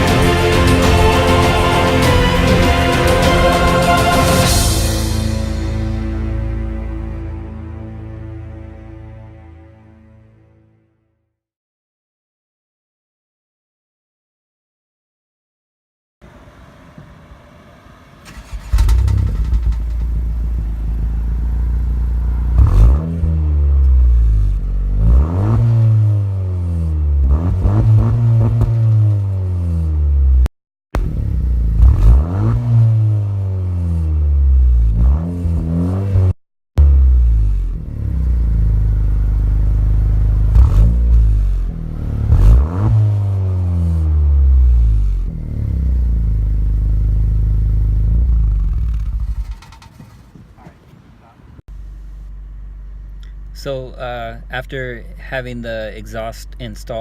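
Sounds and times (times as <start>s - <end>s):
car engine idling: 16.2s - 25.0s, 37.4s - 50.7s, 51.7s - 57.0s
car engine cranking: 18.2s - 26.3s, 37.7s - 50.7s.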